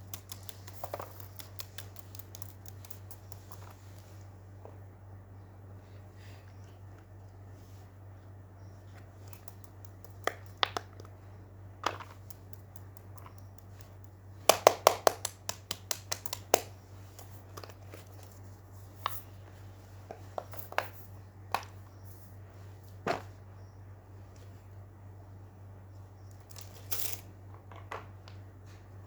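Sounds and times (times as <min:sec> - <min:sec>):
fidget toy clicks and taps: 0:00.0 - 0:03.6
steady low hum: 0:00.0 - 0:29.0.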